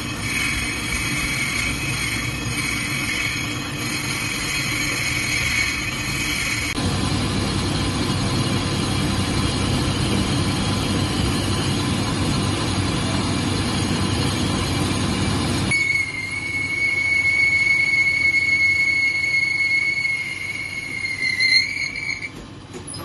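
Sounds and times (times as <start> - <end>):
high-pitched tool squeal: 0.0 - 6.8, 15.7 - 22.3
lathe tool grinding metal: 0.0 - 6.8.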